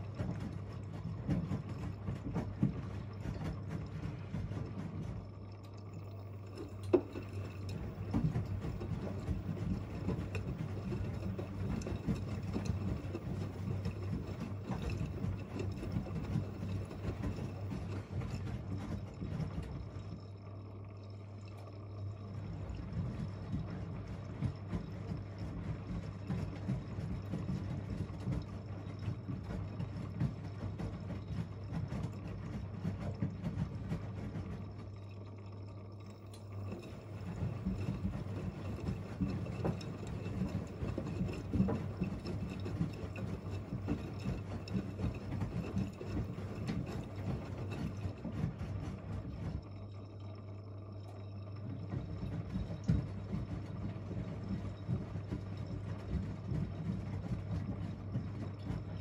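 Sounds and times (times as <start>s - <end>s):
water sloshing: 0.0s - 20.4s, 34.0s - 53.2s
washing machine drums tumbling: 0.0s - 20.5s, 21.6s - 59.0s
motor hum: 0.0s - 59.0s.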